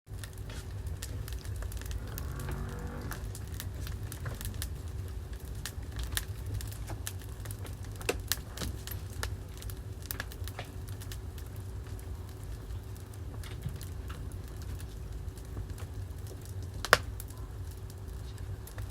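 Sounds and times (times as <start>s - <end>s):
wood fire crackling and popping: 0.1s - 18.9s
low rumble: 1.2s - 6.8s.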